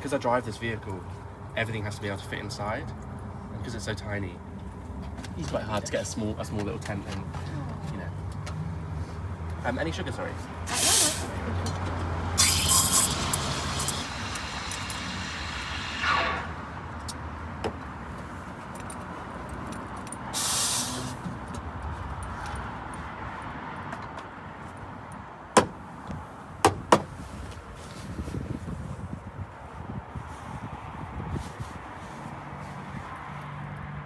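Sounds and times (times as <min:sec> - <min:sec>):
road traffic passing: 0:00.0 - 0:34.0
short hiss: 0:10.7 - 0:11.4, 0:12.4 - 0:16.8, 0:20.4 - 0:21.3
sharp knocks: 0:25.6 - 0:25.8.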